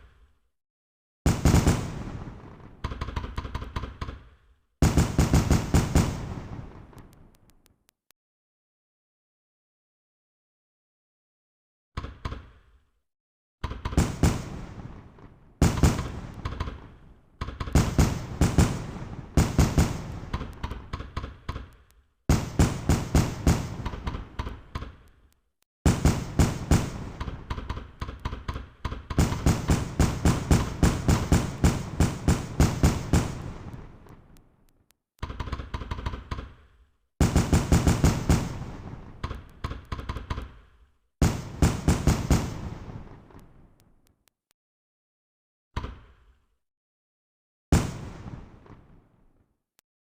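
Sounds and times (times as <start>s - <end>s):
fireworks bangs and crackles: 1.3s - 2.8s, 4.8s - 7.5s, 13.9s - 20.9s, 22.3s - 24.7s, 25.9s - 28.0s, 29.2s - 34.6s, 37.2s - 39.6s, 41.2s - 43.9s, 47.7s - 49.3s.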